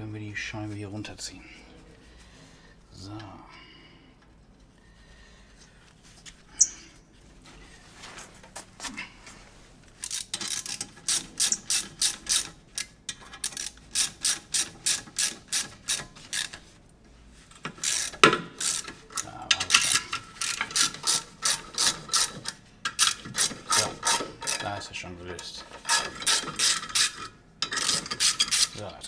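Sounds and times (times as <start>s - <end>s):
ratchet wrench clicking: 10.0s - 16.6s, 17.6s - 24.7s, 25.8s - 28.8s.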